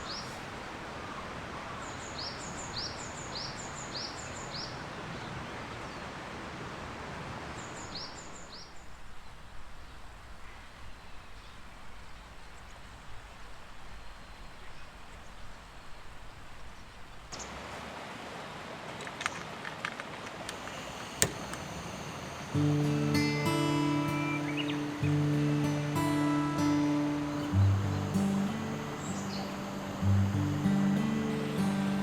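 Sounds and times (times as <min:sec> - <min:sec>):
steady background hiss: 0:00.0 - 0:32.0
sharp clicks: 0:19.0 - 0:22.5
bird chirps: 0:21.6 - 0:32.0.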